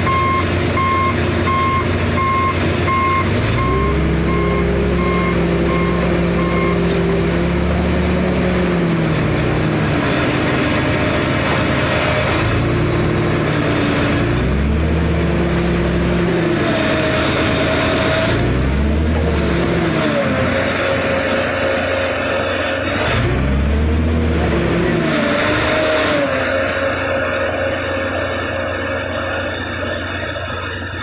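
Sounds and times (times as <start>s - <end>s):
reverse alarm beeping: 0.0s - 6.9s
tractor engine revving: 0.0s - 31.0s.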